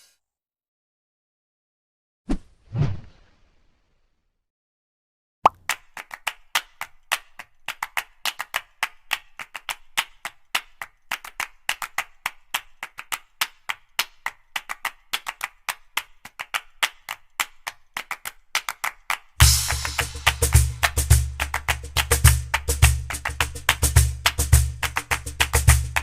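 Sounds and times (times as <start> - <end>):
loud music with heavy bass: 19.4 - 26.0.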